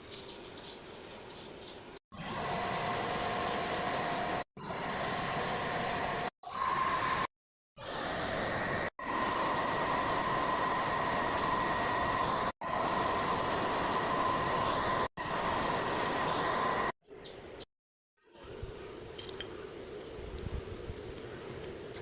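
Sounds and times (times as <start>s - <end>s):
machine grinding with high whine: 2.1s - 17.0s.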